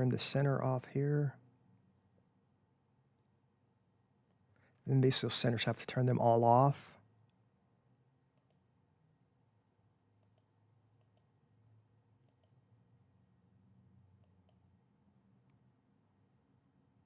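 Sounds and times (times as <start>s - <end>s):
computer mouse clicks: 8.3s - 8.7s, 10.2s - 11.5s, 12.2s - 12.6s, 14.2s - 14.7s.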